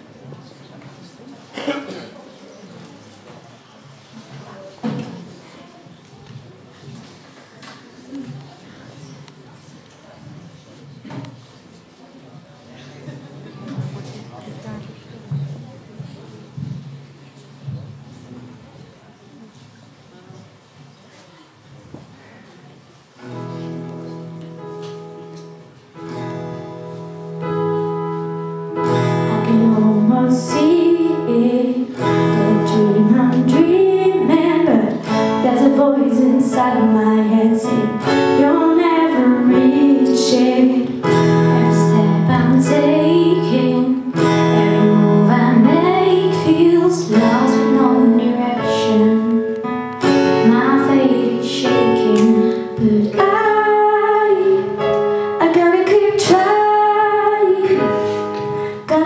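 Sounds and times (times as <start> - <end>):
guitar: 23.2 - 59.0
women singing a pop ballad: 29.3 - 49.4, 50.4 - 54.8, 55.4 - 57.9.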